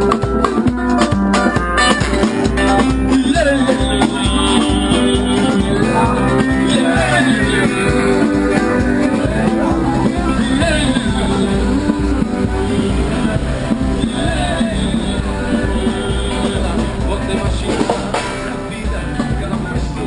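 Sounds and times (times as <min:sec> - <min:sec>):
strummed guitar: 0:00.0 - 0:20.0
person singing: 0:02.6 - 0:20.0.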